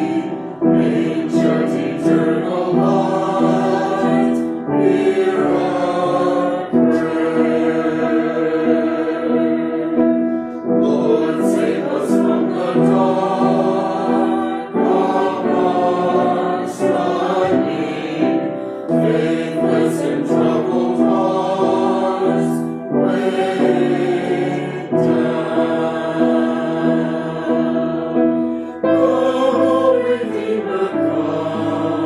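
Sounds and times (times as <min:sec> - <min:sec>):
choir singing: 0:00.0 - 0:32.0.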